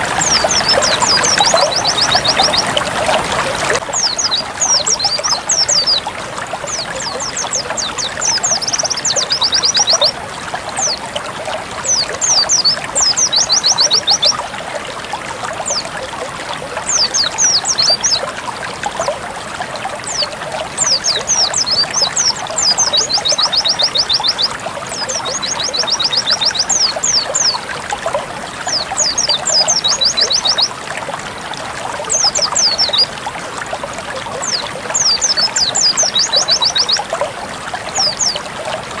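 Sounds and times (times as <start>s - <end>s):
bird twittering chirps and trills: 0.0s - 10.2s, 10.8s - 11.1s, 11.8s - 14.5s, 15.6s - 16.1s, 16.8s - 18.3s, 19.9s - 27.6s, 28.6s - 30.7s, 32.0s - 33.1s, 34.3s - 37.1s, 37.8s - 38.6s
water trickling and splashing: 0.0s - 39.0s.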